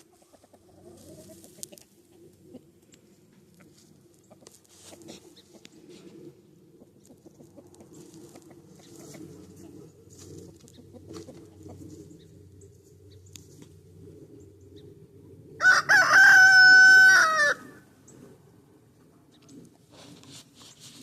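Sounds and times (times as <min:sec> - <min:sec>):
hens clucking softly: 0:00.0 - 0:13.8
rooster crowing: 0:15.6 - 0:17.8.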